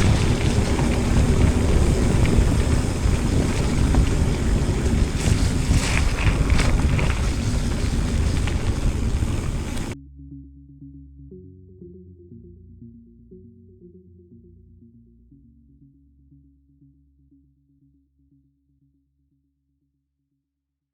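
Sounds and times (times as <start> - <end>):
wind buffeting microphone: 0.0 - 10.0
quiet electronic music: 10.0 - 18.6.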